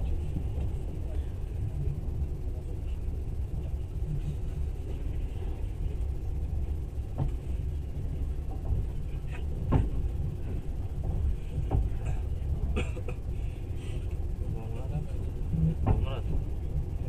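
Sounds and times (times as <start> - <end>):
train rumbling from inside: 0.0 - 17.0
sharp knocks and clicks: 9.7 - 10.0, 15.8 - 16.1.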